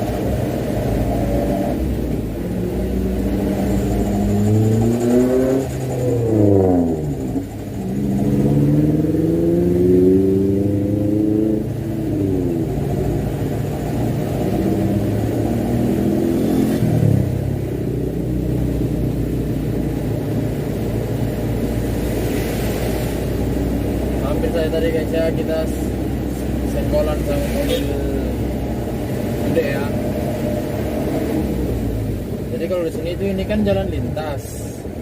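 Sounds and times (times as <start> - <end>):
truck diesel engine accelerating: 0.0 - 35.0.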